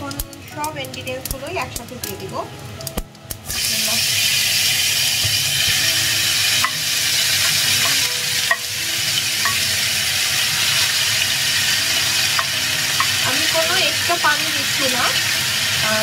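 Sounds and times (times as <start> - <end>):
food sizzling in hot oil: 0.0 - 16.0
wooden spatula tapping: 7.5 - 8.7.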